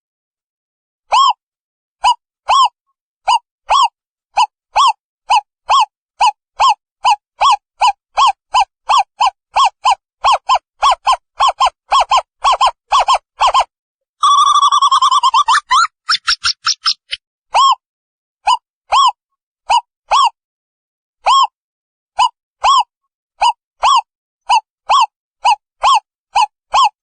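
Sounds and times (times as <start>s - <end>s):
owl bubbling trill: 14.2s - 17.2s.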